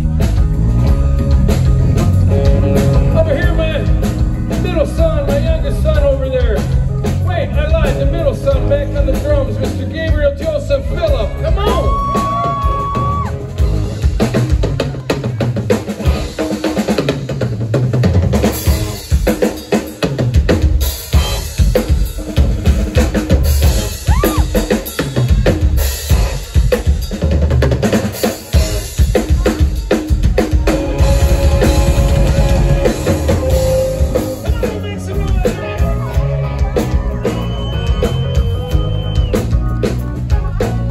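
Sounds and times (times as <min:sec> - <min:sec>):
drum solo: 0:00.0 - 0:40.9
held note: 0:30.7 - 0:34.6.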